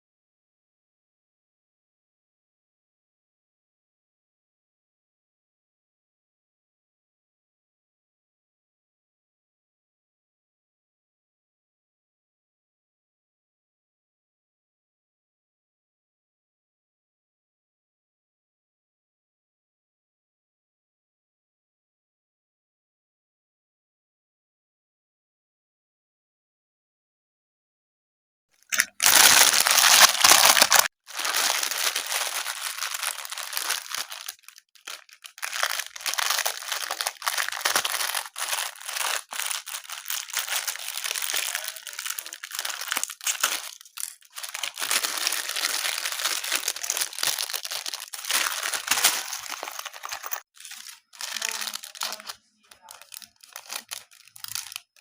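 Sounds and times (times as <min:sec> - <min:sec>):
packaging crinkled and torn open: 0:28.7 - 0:55.0.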